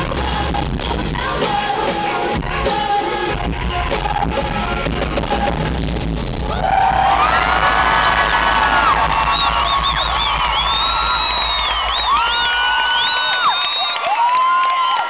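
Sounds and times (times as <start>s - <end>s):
person singing: 0.0s - 5.8s
live band with bass: 0.0s - 12.5s.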